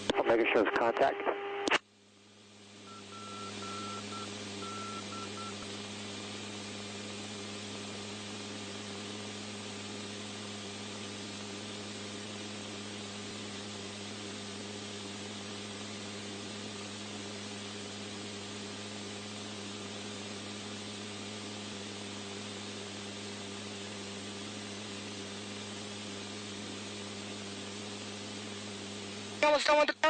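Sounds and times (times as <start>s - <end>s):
high beeps: 2.9s - 5.6s
static hiss: 24.4s - 30.0s.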